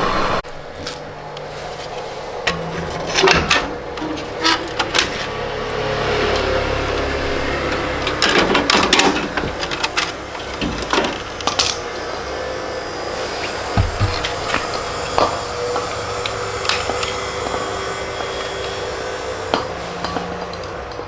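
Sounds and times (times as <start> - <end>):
steady low hum: 9.2 - 21.0.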